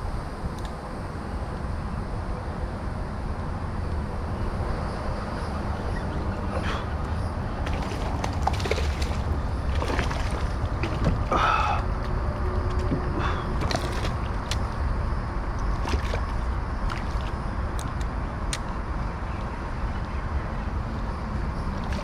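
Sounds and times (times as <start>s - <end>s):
steady low rumble: 0.0s - 22.0s
water sloshing around kayak: 6.4s - 18.0s, 21.7s - 22.0s.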